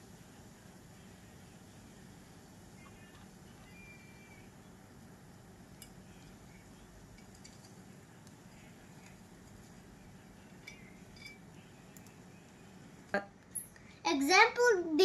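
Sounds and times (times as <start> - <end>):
faint light clinks and taps: 10.6 - 11.4.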